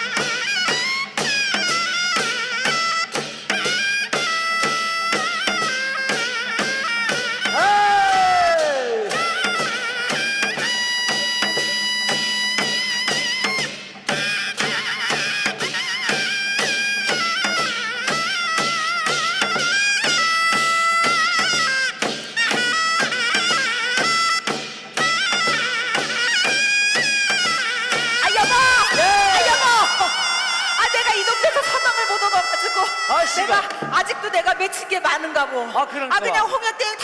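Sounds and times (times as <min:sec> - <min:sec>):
steady drum strokes: 0:00.0 - 0:32.0
reedy wind instrument melody: 0:00.0 - 0:34.0.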